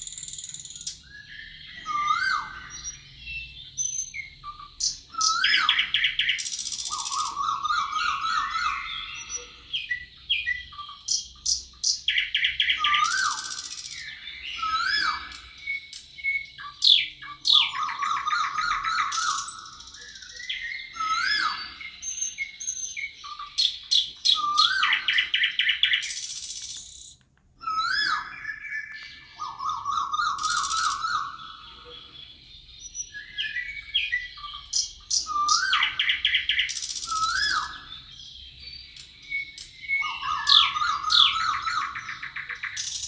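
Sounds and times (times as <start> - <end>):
birds singing: 0.0 - 43.0.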